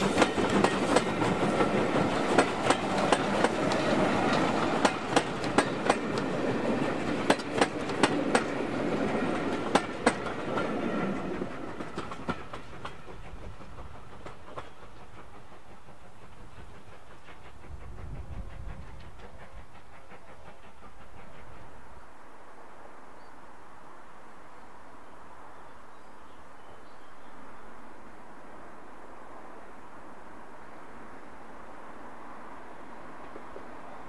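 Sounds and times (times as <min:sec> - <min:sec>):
wheels clicking over rail joints: 0:00.0 - 0:17.4
train passing: 0:00.0 - 0:34.0.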